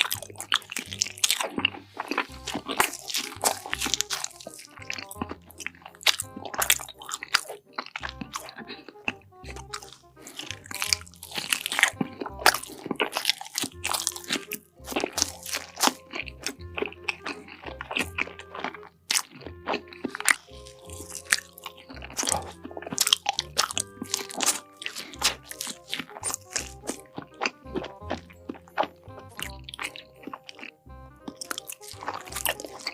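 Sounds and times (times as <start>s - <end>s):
crunchy food chewing: 0.0s - 32.9s
music with pulsing bass: 8.0s - 13.0s, 13.8s - 24.1s, 25.2s - 32.9s.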